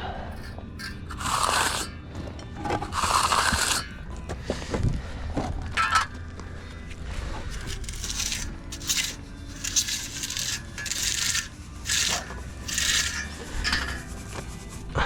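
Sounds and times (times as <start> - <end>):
hand tool scraping wet concrete: 0.3 - 4.1, 7.3 - 14.6.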